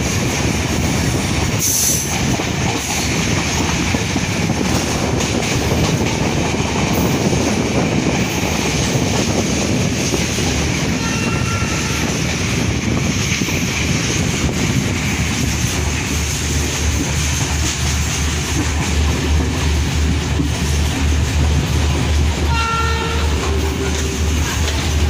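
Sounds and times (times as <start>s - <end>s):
wheels rumbling on track: 0.0s - 25.0s
wind and rail noise: 0.0s - 25.0s
faint train horn: 10.9s - 12.2s, 22.4s - 24.2s.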